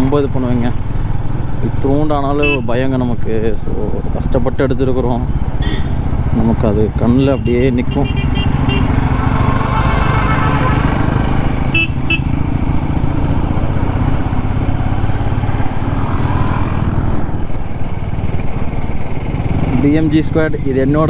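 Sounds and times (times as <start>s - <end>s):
motorcycle engine running: 0.0s - 21.0s
vehicle horn toots: 2.4s - 2.8s, 5.6s - 6.2s, 7.0s - 12.6s.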